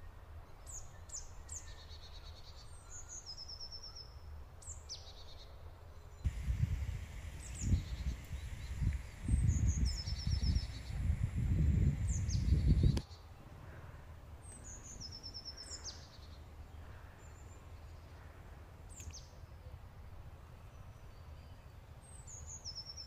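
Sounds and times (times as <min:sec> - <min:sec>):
wind buffeting microphone: 0:06.2 - 0:13.0
birds chirping and calling: 0:06.3 - 0:13.0.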